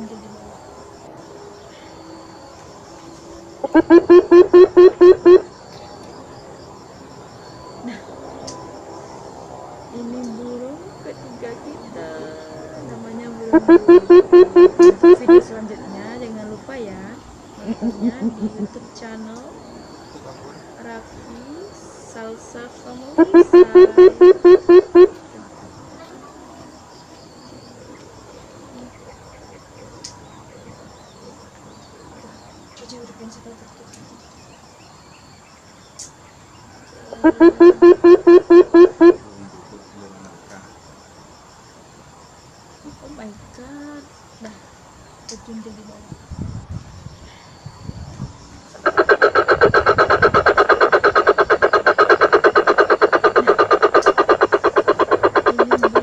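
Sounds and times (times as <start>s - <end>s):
insects trilling: 0.0s - 56.0s
coucal call rapid pulsing: 3.6s - 5.5s, 13.3s - 15.7s, 23.0s - 25.2s, 37.2s - 39.2s, 48.8s - 56.0s.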